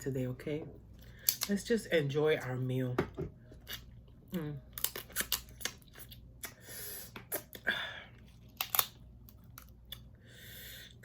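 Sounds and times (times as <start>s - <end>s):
person eating noisily: 3.6s - 11.0s
crab shells cracking by hand: 8.4s - 10.1s.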